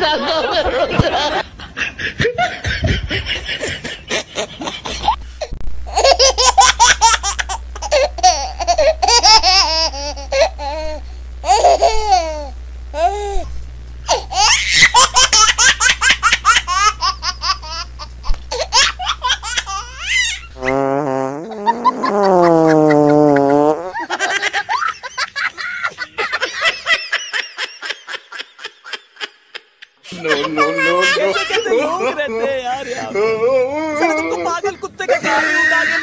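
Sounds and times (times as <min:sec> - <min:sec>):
high-pitched laughter: 0:14.1 - 0:17.9, 0:21.6 - 0:32.0.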